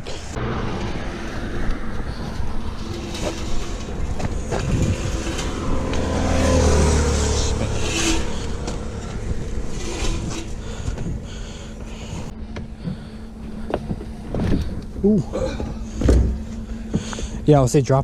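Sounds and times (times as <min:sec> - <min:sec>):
car engine passing by: 0:00.0 - 0:10.9.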